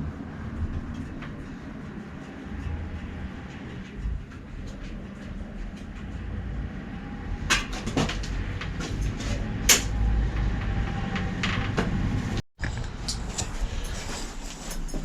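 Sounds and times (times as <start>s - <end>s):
steady low rumble: 0.0s - 14.6s
sharp clicks and knocks: 7.4s - 13.5s.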